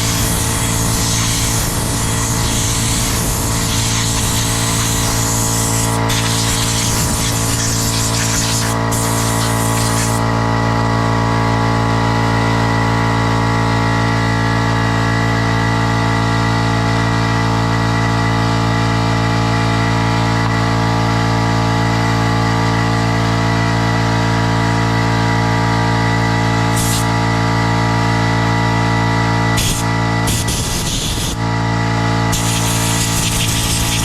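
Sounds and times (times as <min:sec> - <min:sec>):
compressed air hissing: 0:00.0 - 0:10.3, 0:26.7 - 0:27.1, 0:29.6 - 0:31.4, 0:32.3 - 0:34.0
motor humming: 0:00.0 - 0:10.5, 0:32.3 - 0:34.0.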